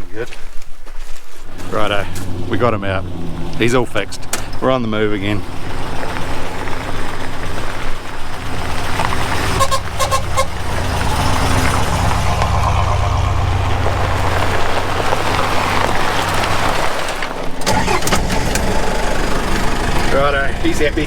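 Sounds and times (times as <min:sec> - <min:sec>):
vehicle engine driving: 0:01.4 - 0:21.0
vehicle horn tooting: 0:08.4 - 0:13.1.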